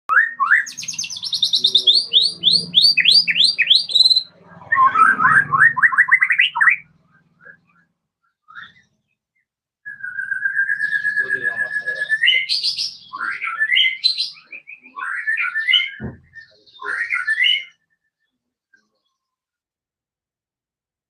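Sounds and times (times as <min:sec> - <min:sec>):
songbird singing: 0:00.1 - 0:19.4.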